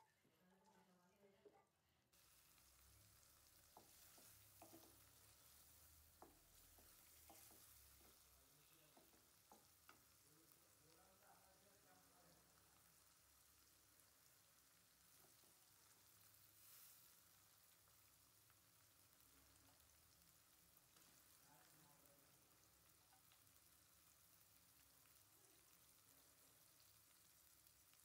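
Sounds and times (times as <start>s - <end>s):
spice paste sizzling in a pan: 2.1s - 28.0s
fish hissing into hot pan: 16.3s - 17.4s.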